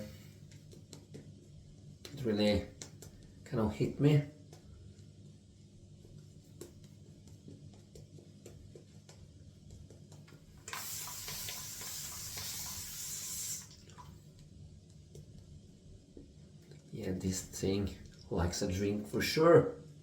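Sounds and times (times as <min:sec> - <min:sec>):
water tap running: 0:10.6 - 0:14.3.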